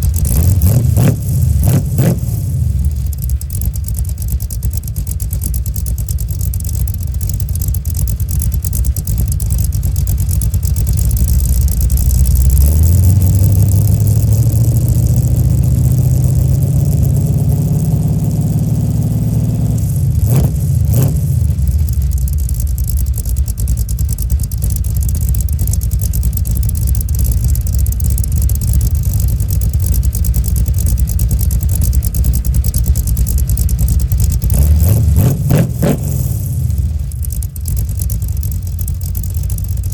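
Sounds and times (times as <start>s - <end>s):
engine revving: 0.0s - 3.5s, 11.1s - 22.3s, 33.9s - 37.4s
exhaust cracks: 0.0s - 39.9s.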